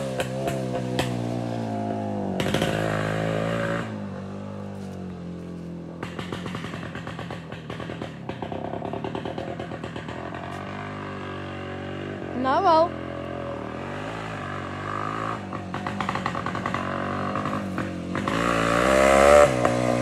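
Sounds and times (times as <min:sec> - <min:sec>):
exhaust crackling pops: 0:00.0 - 0:03.3, 0:05.8 - 0:10.7, 0:15.4 - 0:18.8
two-stroke engine open exhaust: 0:00.0 - 0:20.0.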